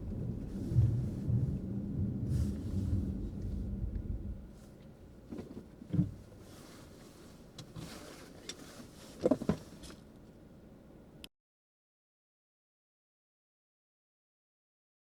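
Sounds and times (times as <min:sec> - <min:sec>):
car road rumble: 0:00.0 - 0:11.2.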